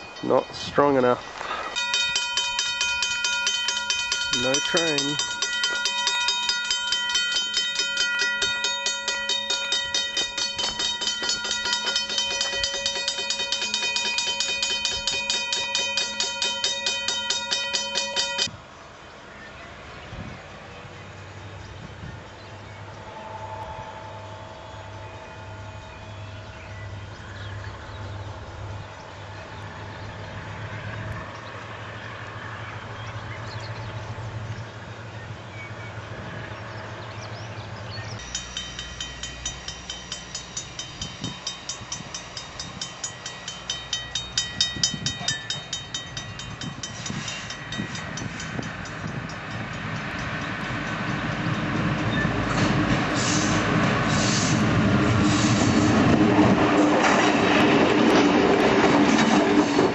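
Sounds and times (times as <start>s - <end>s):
level-crossing alarm bell ringing: 0.0s - 18.5s, 22.8s - 29.3s, 38.2s - 52.5s
diesel locomotive engine hum: 0.0s - 59.9s
locomotive engine approaching: 0.0s - 59.9s.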